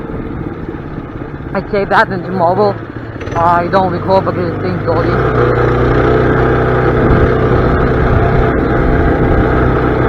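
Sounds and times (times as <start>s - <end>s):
small gas engine running: 0.0s - 10.0s.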